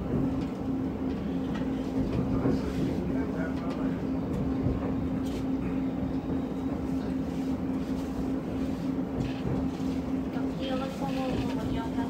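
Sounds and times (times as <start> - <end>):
train rumbling in motion: 0.0 - 12.0.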